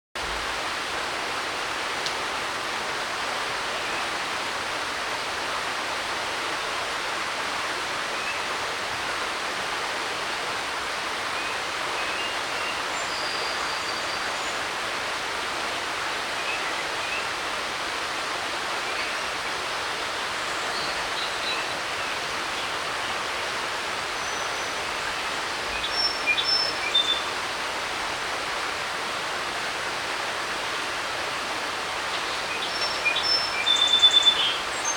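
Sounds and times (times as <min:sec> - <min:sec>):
creek running: 0:00.2 - 0:07.2, 0:19.3 - 0:34.9.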